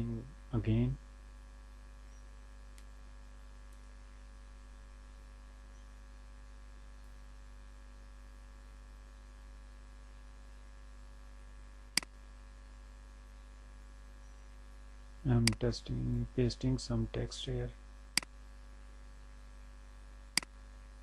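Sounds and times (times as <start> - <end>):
electrical mains hum: 0.0 - 21.0
sharp click: 15.4 - 15.6.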